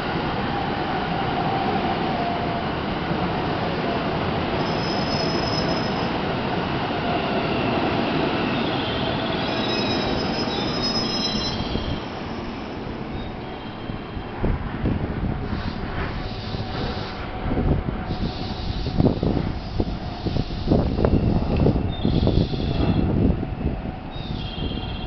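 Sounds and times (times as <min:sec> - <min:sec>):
train wheels rumbling on rail: 0:00.0 - 0:25.0
high brake squeals: 0:04.6 - 0:06.1, 0:07.4 - 0:14.3, 0:18.1 - 0:23.1, 0:24.1 - 0:25.0.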